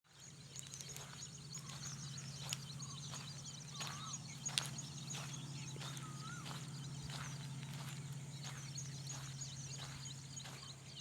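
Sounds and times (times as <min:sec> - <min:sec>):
small birds chirping: 0:00.1 - 0:11.0
steady low hum: 0:00.2 - 0:11.0.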